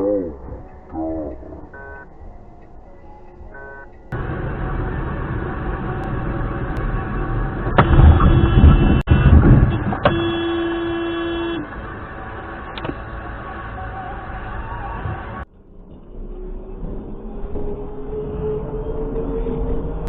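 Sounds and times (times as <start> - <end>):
car road and engine noise: 0.0 - 20.0
loud rough road noise: 4.1 - 20.0.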